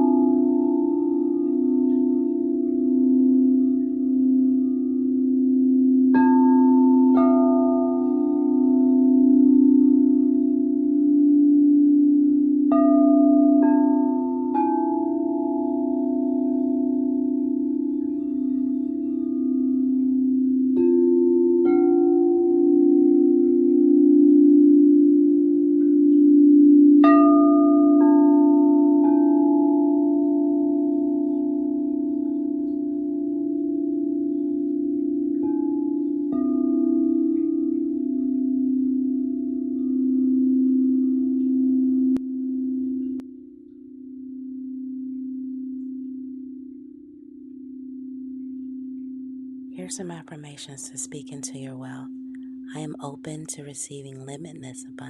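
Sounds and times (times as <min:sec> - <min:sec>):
singing bowls struck ringing: 0:00.0 - 0:43.3
low singing bowl drone: 0:00.0 - 0:51.0.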